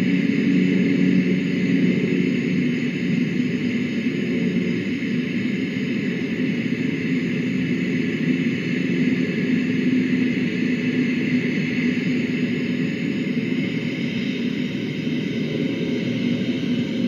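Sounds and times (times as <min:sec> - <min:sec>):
steady rumbling noise: 0:00.0 - 0:17.0.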